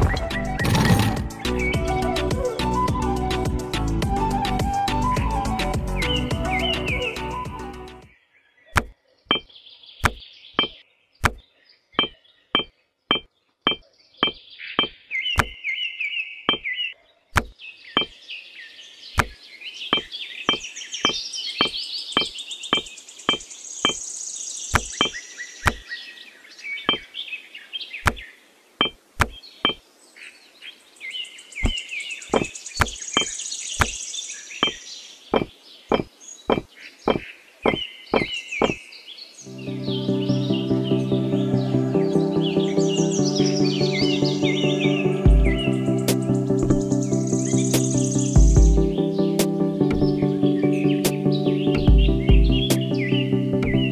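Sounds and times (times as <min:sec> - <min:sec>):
chirping: 0:08.7 - 0:11.4, 0:12.0 - 0:15.6, 0:49.9 - 0:53.9.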